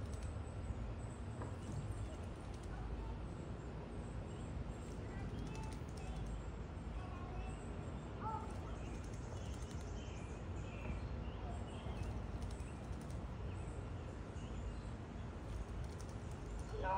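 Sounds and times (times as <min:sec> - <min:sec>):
faint clicks: 0:00.0 - 0:00.4, 0:01.4 - 0:02.8, 0:04.9 - 0:06.4, 0:08.5 - 0:10.0, 0:11.9 - 0:13.3, 0:15.5 - 0:16.8
faint bird chirps: 0:00.0 - 0:16.9
low outdoor rumble: 0:00.0 - 0:16.9.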